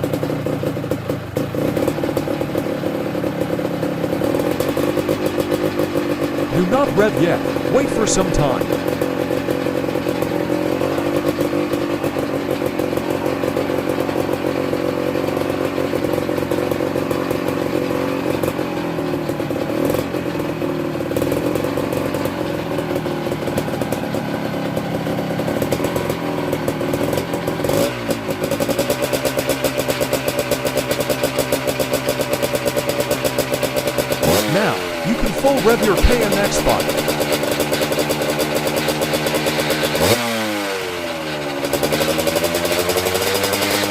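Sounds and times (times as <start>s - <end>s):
two-stroke engine idling: 0.0s - 40.3s.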